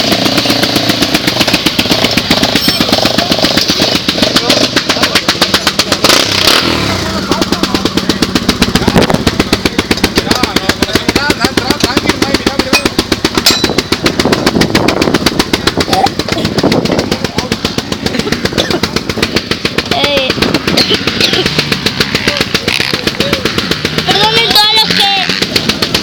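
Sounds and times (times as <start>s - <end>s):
race engine exhaust popping: 0.0s - 26.0s
people talking: 2.4s - 13.0s, 15.8s - 19.2s, 19.8s - 25.5s.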